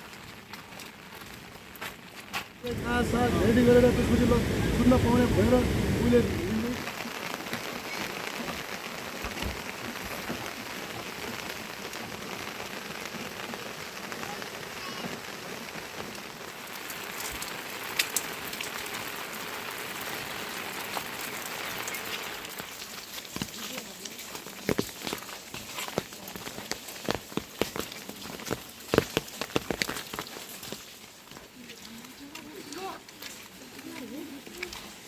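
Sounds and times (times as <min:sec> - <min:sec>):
steady rain falling: 0:00.0 - 0:35.0
small drip clicks: 0:17.1 - 0:18.8.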